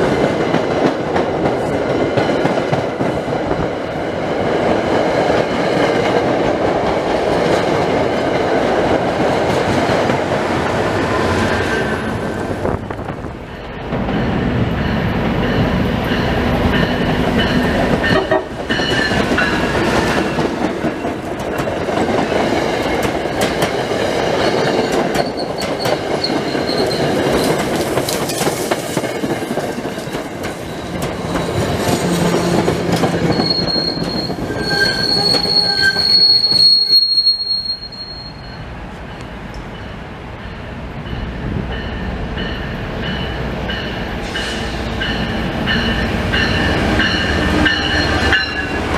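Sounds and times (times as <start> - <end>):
train rumbling on rails: 0.0 - 48.9
high-pitched wheel squeal: 33.2 - 38.6.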